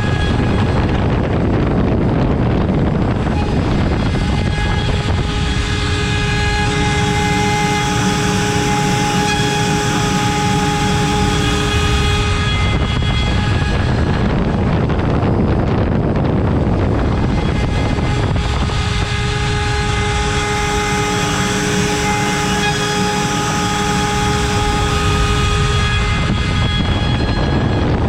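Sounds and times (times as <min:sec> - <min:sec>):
router spindle high whine: 0:00.0 - 0:28.0
bit cutting through wood: 0:03.2 - 0:14.4, 0:17.1 - 0:27.6.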